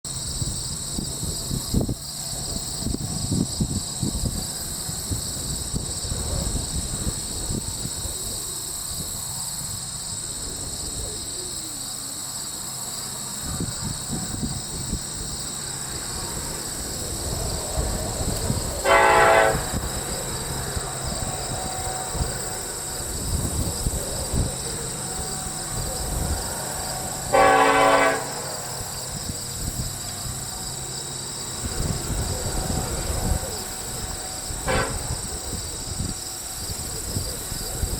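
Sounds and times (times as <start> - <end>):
diesel locomotive rumble: 0.1 - 37.9
insects droning: 0.1 - 37.9
train air horn blasts: 18.8 - 20.1, 21.2 - 22.8, 26.9 - 28.9, 34.1 - 35.3.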